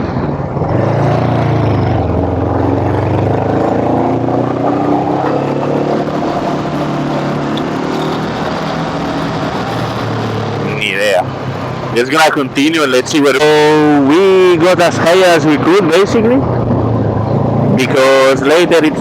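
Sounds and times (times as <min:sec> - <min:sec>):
wind and road noise: 0:00.0 - 0:19.0
scooter engine running: 0:00.4 - 0:12.0.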